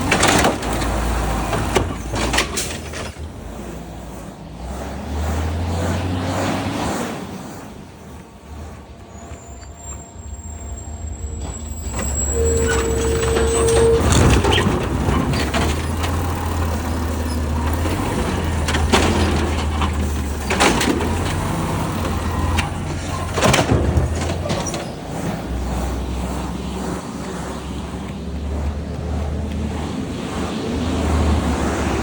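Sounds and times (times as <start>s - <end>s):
garbage truck diesel engine: 0.0s - 32.0s
high thin whistle: 9.4s - 14.6s
short beep-like tone: 10.2s - 14.7s.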